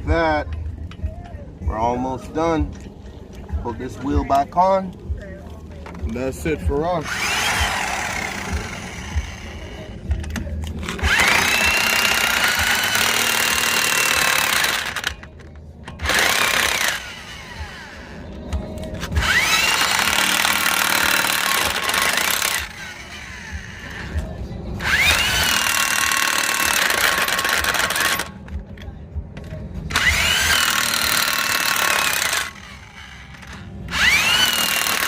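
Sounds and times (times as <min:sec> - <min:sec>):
impact wrench whining: 0:07.0 - 0:18.4, 0:19.0 - 0:28.5, 0:29.9 - 0:35.0.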